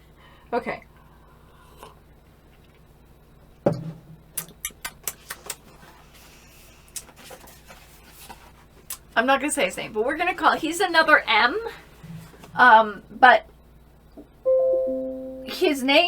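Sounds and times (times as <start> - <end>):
dull knock: 3.7 - 4.2.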